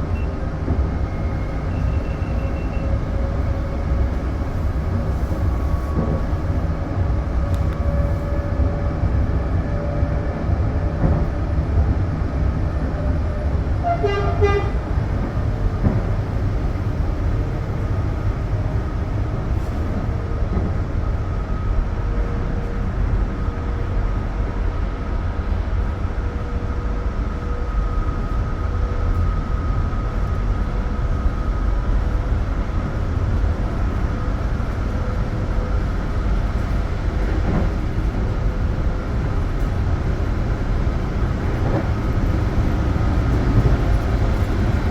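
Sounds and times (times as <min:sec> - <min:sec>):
train rumbling on rails: 0:00.0 - 0:44.9
train horn toot: 0:13.8 - 0:14.9.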